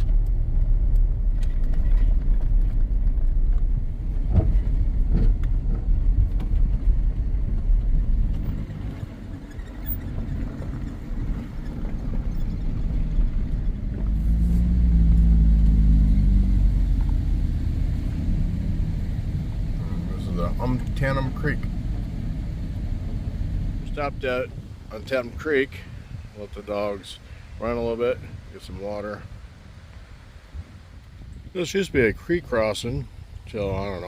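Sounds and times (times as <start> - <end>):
vehicle engine and tyres rumbling: 0.0 - 34.0.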